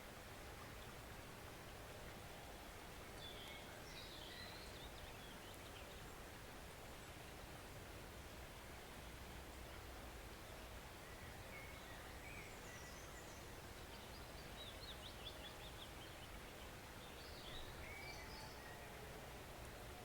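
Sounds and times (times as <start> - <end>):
forest stream rushing: 0.0 - 20.0.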